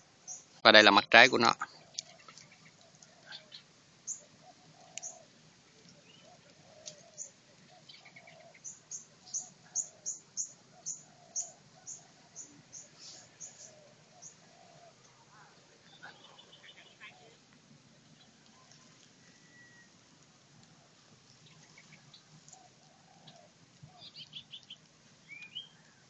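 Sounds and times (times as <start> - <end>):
birds chirping: 0.0 - 26.0
softer lower bird calls: 0.0 - 26.0.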